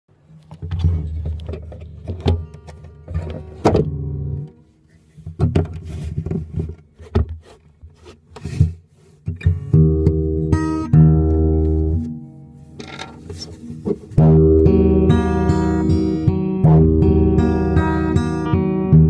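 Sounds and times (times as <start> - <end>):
handling knocks and clicks: 0.4 - 4.0, 12.8 - 14.1
guitar strings ringing: 0.7 - 4.6, 9.4 - 19.0.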